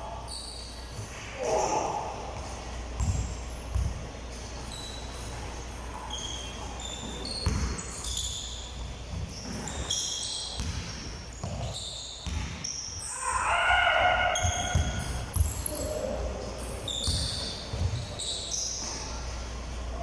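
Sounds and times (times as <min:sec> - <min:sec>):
sneakers squeaking: 0:00.0 - 0:20.0
basketballs thudding on hardwood: 0:03.0 - 0:04.0, 0:07.0 - 0:07.8.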